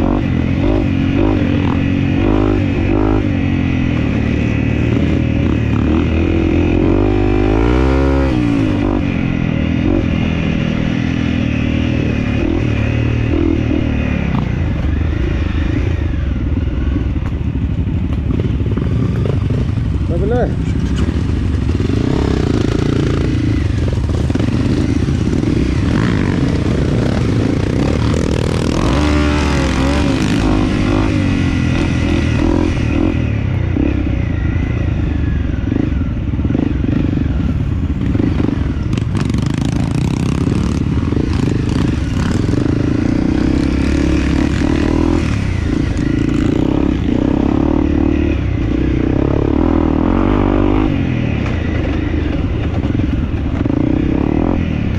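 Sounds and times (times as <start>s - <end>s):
dirt bike engine revving: 0.0s - 17.1s, 18.2s - 54.9s.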